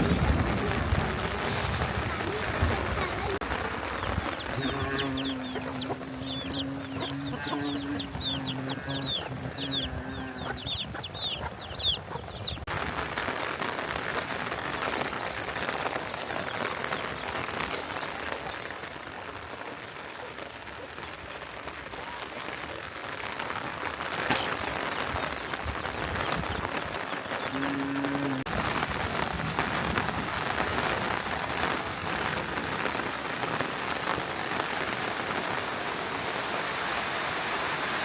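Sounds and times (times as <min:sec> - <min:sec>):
heavy rain hissing: 0:00.0 - 0:38.0
chickens clucking: 0:02.1 - 0:12.7
high bird chirps: 0:04.5 - 0:12.7.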